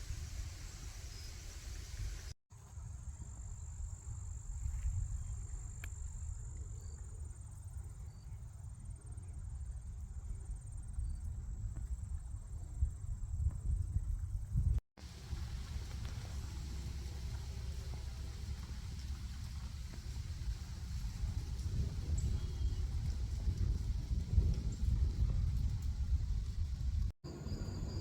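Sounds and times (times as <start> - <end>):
wind rumble on microphone: 0.0 - 28.0
cricket trill: 27.3 - 28.0.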